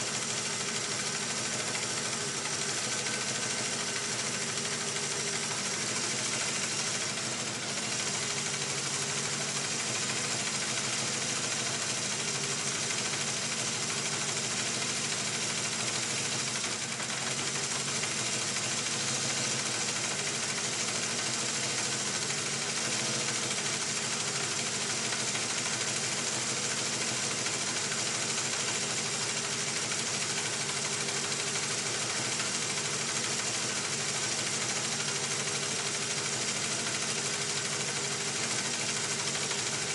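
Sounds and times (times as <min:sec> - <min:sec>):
motorcycle engine idling with ticking: 0:00.0 - 0:39.9.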